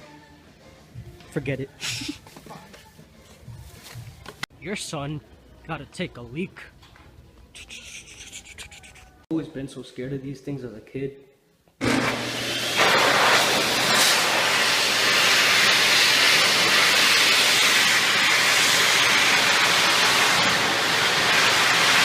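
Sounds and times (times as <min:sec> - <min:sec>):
electric hand dryer running: 0:11.8 - 0:22.0.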